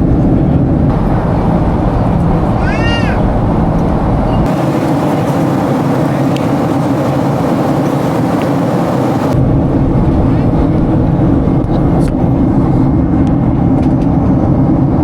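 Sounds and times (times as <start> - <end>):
vehicle cabin road noise: 0.0 - 9.4.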